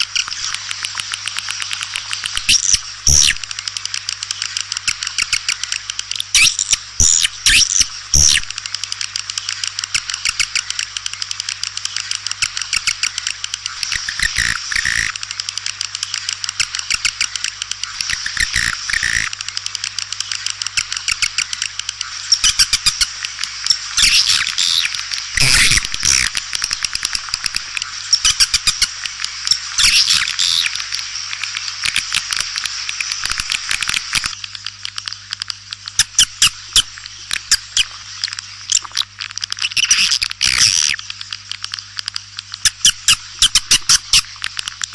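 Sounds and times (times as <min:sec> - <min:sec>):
swiftlets twittering: 0:00.0 - 0:19.3, 0:20.1 - 0:31.2.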